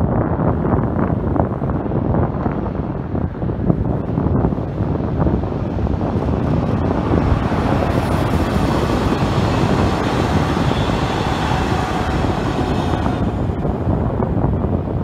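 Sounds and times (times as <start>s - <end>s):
train passing on rails: 6.2s - 14.1s.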